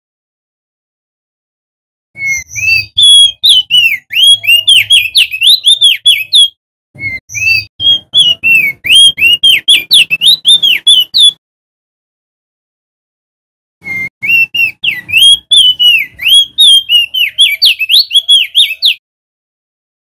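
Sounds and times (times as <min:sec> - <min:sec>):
bird singing whistled notes: 0:02.2 - 0:11.4, 0:13.8 - 0:19.0.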